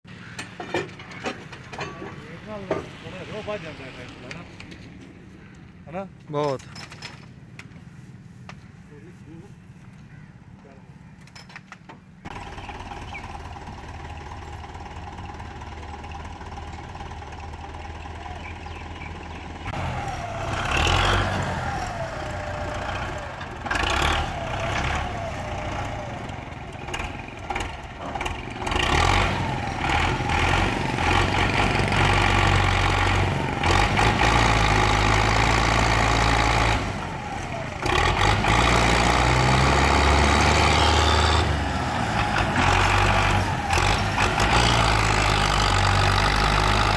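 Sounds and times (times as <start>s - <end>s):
tractor engine revving: 12.3s - 46.9s.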